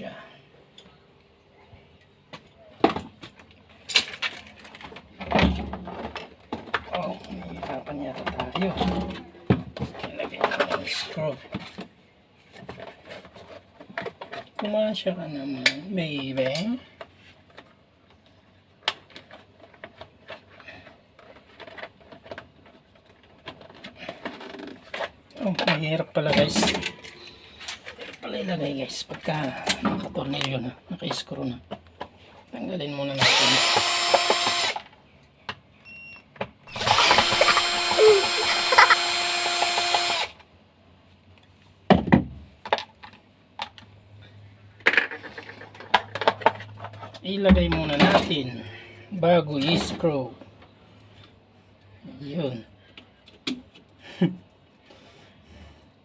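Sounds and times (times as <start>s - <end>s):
power drill backing out screw: 33.2s - 34.8s, 36.7s - 40.4s
parts clicking and knocking: 33.2s - 35.7s, 36.4s - 40.5s, 44.8s - 48.3s.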